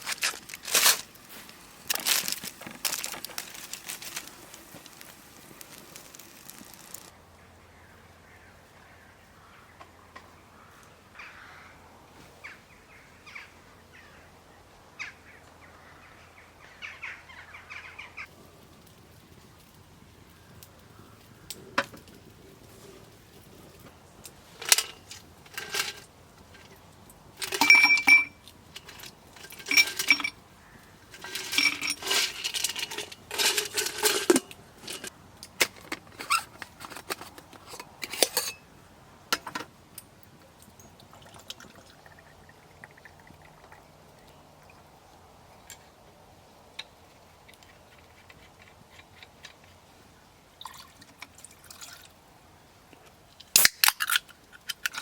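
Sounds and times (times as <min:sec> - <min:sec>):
drinkware and utensils clinking: 0:27.4 - 0:30.4, 0:31.1 - 0:38.7.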